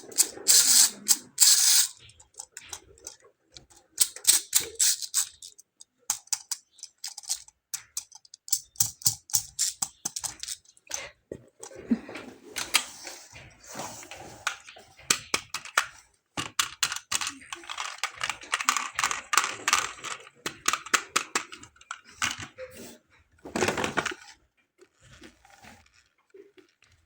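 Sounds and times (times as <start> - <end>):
sharp clicks and taps of toys: 0.1 - 10.7, 15.1 - 22.5
plastic packaging rustling: 23.4 - 27.0.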